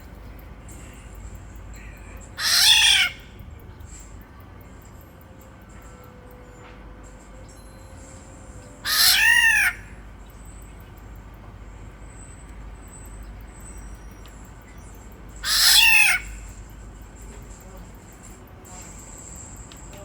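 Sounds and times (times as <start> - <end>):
oriole harsh nasal calls: 2.3 - 3.4, 8.8 - 10.0, 15.4 - 16.5.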